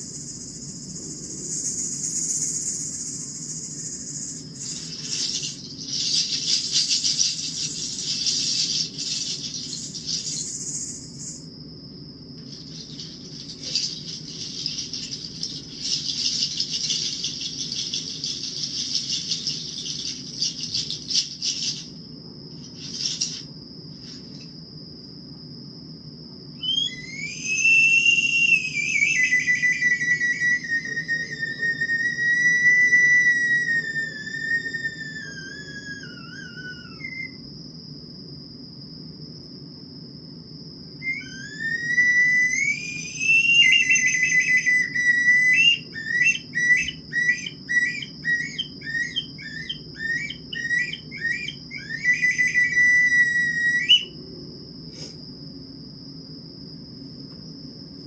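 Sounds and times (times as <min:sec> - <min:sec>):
whistle-like sliding tone: 0:26.6 - 0:37.4, 0:41.0 - 0:54.1.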